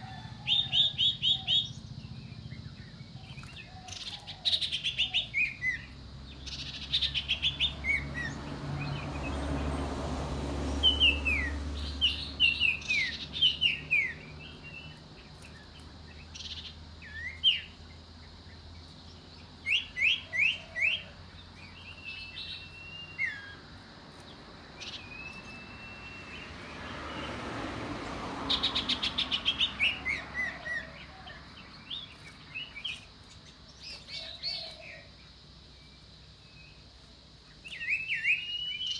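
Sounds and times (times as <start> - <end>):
bird whistling calls: 21.9 - 23.6, 24.8 - 26.7, 37.6 - 38.9
long steady whistles: 22.2 - 23.6, 25.1 - 26.6.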